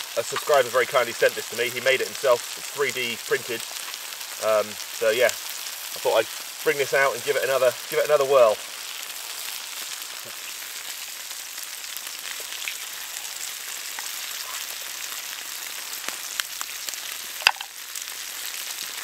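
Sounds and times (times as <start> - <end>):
meat sizzling in skillets: 0.0 - 19.0.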